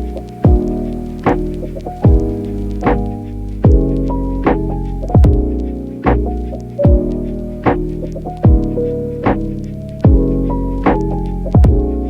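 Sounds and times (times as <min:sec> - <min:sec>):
keyboard chords over a beat: 0:00.0 - 0:12.0
drum hits: 0:00.5 - 0:07.1, 0:07.7 - 0:08.7, 0:10.9 - 0:12.0.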